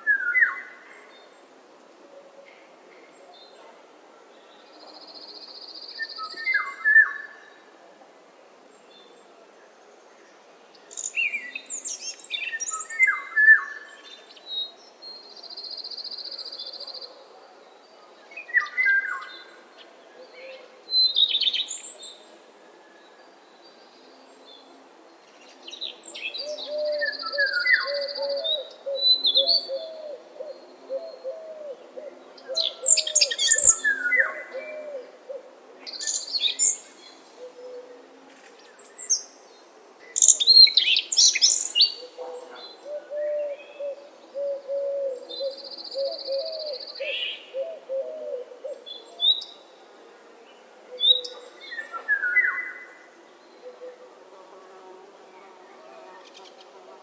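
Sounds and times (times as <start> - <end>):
birds chirping: 32.7 - 34.8.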